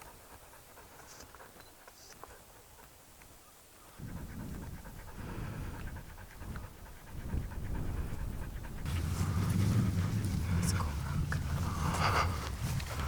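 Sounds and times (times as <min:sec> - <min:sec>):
dog panting: 0:00.0 - 0:02.9, 0:03.9 - 0:13.0
low rumble: 0:04.2 - 0:13.0.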